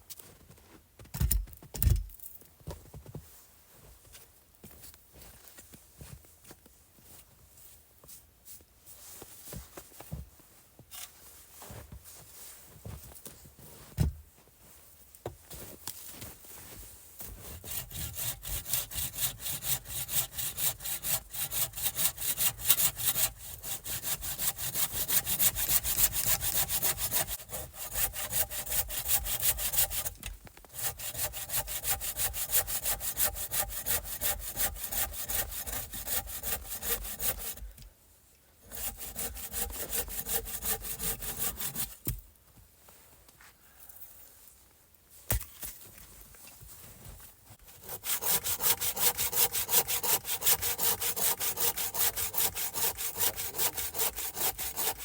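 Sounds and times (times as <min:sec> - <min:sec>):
hand saw cutting wood: 0:17.3 - 0:37.8, 0:38.6 - 0:42.2, 0:47.6 - 0:55.0.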